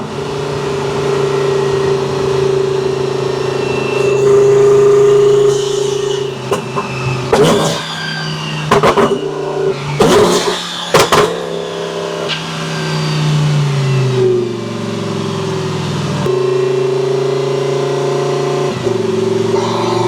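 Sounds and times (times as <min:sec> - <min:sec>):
sports car engine running: 0:00.0 - 0:05.1, 0:08.7 - 0:20.0
exhaust pops and cracks: 0:06.4 - 0:08.0, 0:08.6 - 0:12.5.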